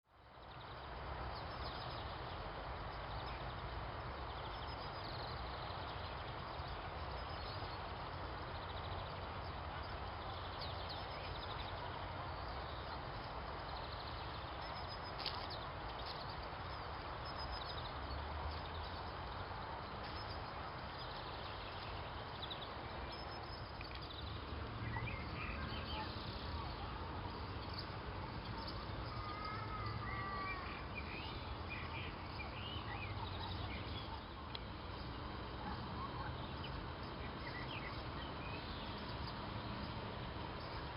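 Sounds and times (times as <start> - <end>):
outdoor background noise: 0.0 - 40.9
small birds chirping: 0.1 - 40.9
faint clicks: 34.5 - 34.7.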